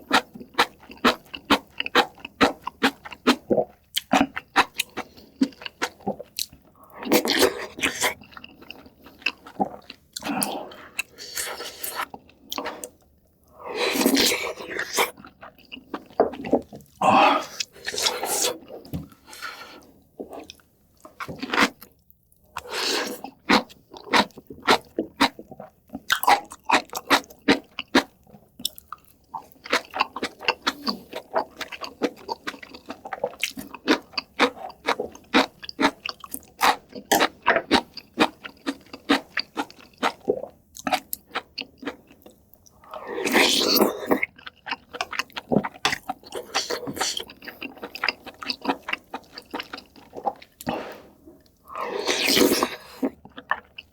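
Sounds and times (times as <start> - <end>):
chewing and crunching food: 0.0 - 53.9.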